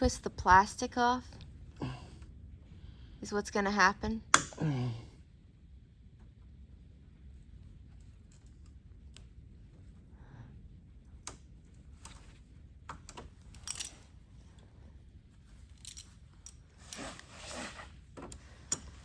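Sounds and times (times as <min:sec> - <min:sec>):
hand tool clicking and scraping: 0:15.8 - 0:17.8.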